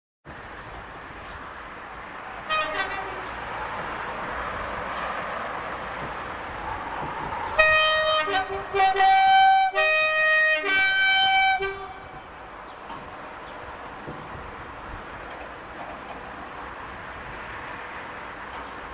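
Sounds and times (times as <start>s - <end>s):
diesel locomotive engines running: 0.3s - 18.9s
two-tone train air horn: 2.5s - 3.5s, 7.6s - 12.3s.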